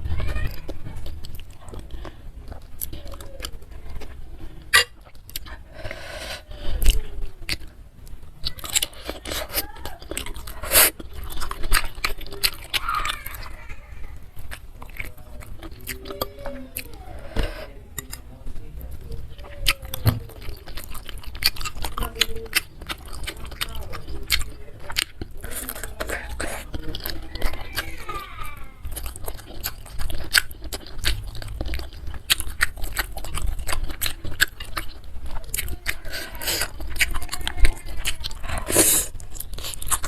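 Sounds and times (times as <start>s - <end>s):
food crunching: 0.0s - 40.0s
wet chewing and smacking: 0.0s - 40.0s.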